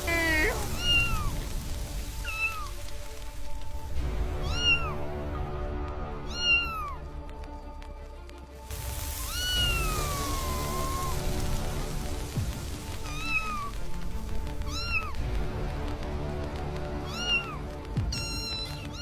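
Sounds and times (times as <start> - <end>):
kitten meowing: 0.0 - 1.4, 6.3 - 7.0, 14.7 - 15.2, 17.1 - 19.0.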